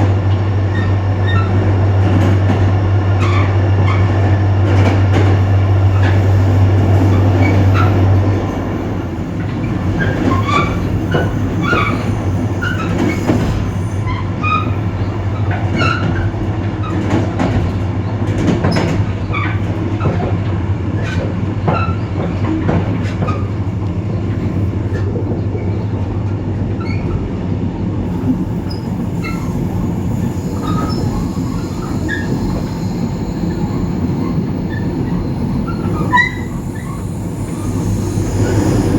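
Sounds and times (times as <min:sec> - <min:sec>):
diesel locomotive engine drone: 0:00.0 - 0:38.9
rail clicks: 0:00.0 - 0:38.9
train running noise: 0:00.0 - 0:38.9
wheel squeals: 0:04.8 - 0:16.3, 0:28.0 - 0:38.9.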